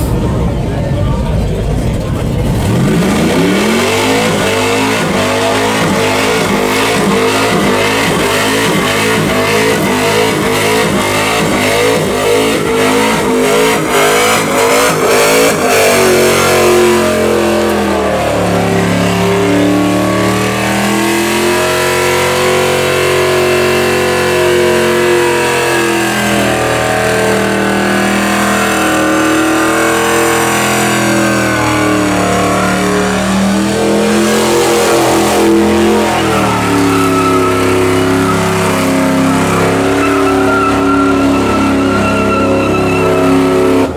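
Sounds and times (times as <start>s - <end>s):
loud vehicle engine revving: 0.0s - 43.9s.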